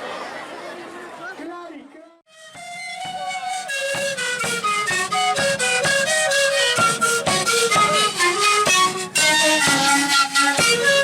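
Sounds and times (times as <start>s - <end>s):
flute-like folk melody: 2.3s - 11.0s
steady beat: 2.3s - 11.0s.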